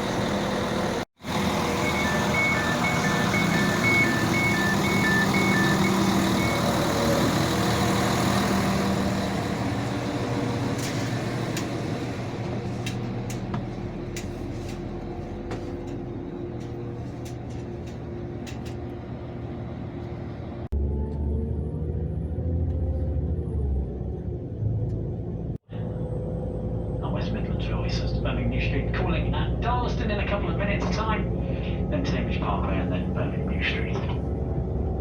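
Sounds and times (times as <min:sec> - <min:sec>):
train engine hum: 0:00.0 - 0:20.8, 0:24.1 - 0:35.0
two-tone warning beeps: 0:01.8 - 0:06.8.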